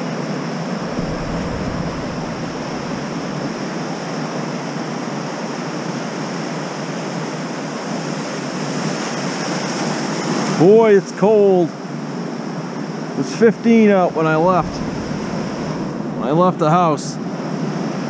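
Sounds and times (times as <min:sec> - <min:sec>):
ocean surf washing in: 0:00.8 - 0:04.2, 0:14.2 - 0:16.8
wind rumbling on microphone: 0:00.8 - 0:04.2, 0:14.2 - 0:16.6.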